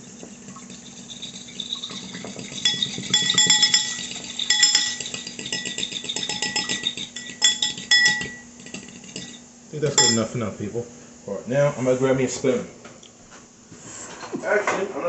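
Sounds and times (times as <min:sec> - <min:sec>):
whisk beating in a bowl: 0:00.0 - 0:09.4.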